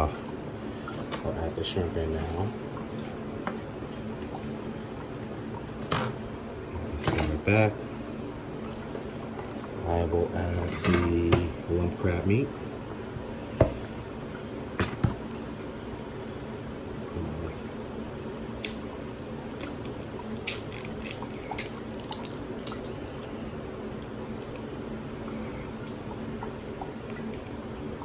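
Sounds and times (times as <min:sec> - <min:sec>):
kitchen utensils clattering: 0:10.6 - 0:11.2.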